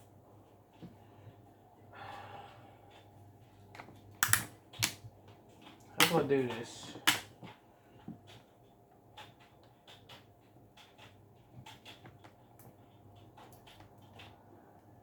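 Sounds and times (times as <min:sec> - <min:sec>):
plastic parts clicking: 0:03.8 - 0:05.0.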